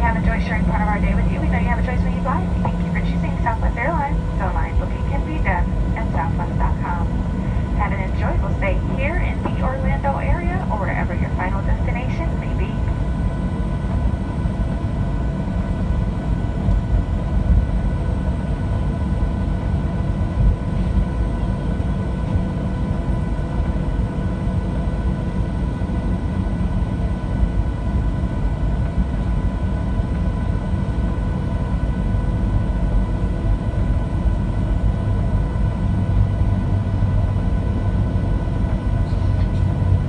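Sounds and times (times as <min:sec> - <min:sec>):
steady tonal hum: 0:00.0 - 0:13.9
airliner cabin rumble: 0:00.0 - 0:40.0.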